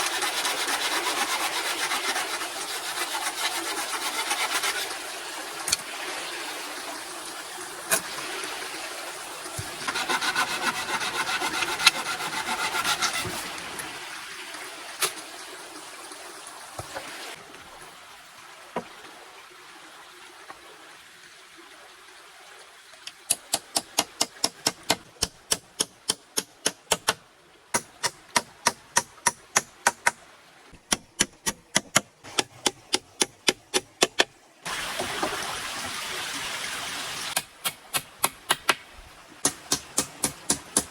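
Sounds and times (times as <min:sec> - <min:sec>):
rasping scrape on wood: 0:00.0 - 0:04.9, 0:09.6 - 0:13.5.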